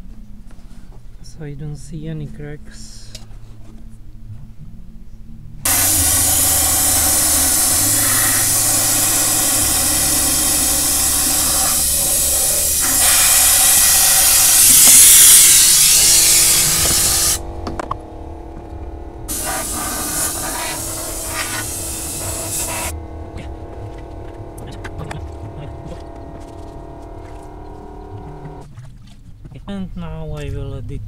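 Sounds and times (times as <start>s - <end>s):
compressed air blow gun hissing: 5.7s - 17.4s, 19.3s - 23.0s.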